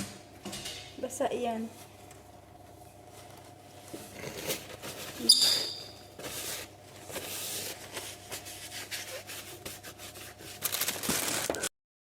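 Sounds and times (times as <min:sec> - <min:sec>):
rustling and rubbing: 0:03.1 - 0:11.6.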